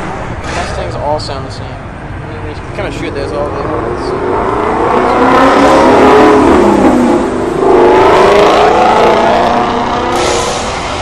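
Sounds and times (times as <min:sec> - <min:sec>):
car engine accelerating hard: 0:02.5 - 0:11.0.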